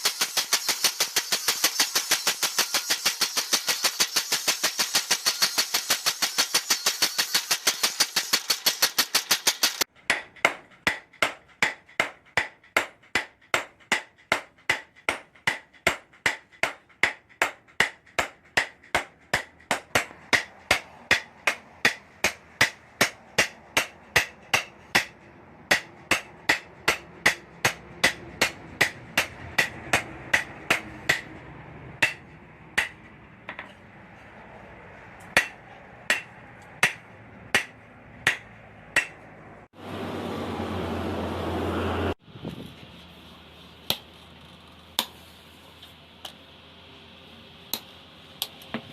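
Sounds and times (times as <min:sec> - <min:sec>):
hammer striking steel on anvil: 0:00.0 - 0:33.8, 0:35.2 - 0:39.3.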